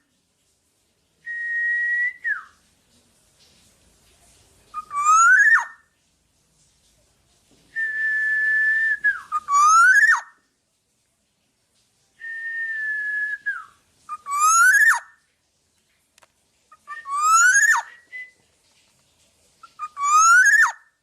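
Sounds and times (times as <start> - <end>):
bird singing fluty whistles: 1.2 - 2.6, 4.7 - 5.8, 7.8 - 10.4, 12.2 - 15.2, 16.8 - 18.4, 19.7 - 20.9.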